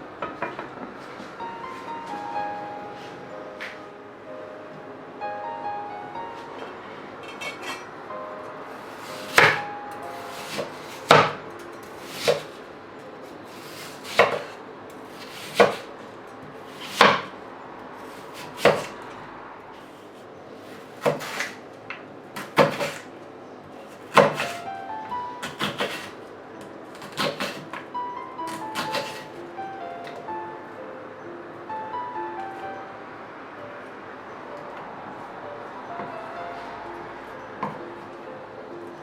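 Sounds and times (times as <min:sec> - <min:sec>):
soft background music: 0:00.0 - 0:39.0
knife chopping on wooden board: 0:12.0 - 0:12.5, 0:13.6 - 0:14.6, 0:15.2 - 0:15.9, 0:16.8 - 0:17.3, 0:18.4 - 0:18.9, 0:21.0 - 0:21.6, 0:22.4 - 0:23.0, 0:24.1 - 0:24.6, 0:25.4 - 0:26.2, 0:26.9 - 0:27.8, 0:28.5 - 0:29.3.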